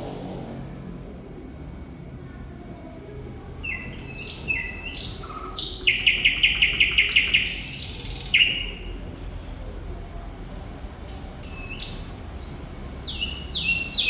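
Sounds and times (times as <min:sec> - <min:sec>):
bird singing: 0:03.0 - 0:09.2, 0:11.4 - 0:14.0.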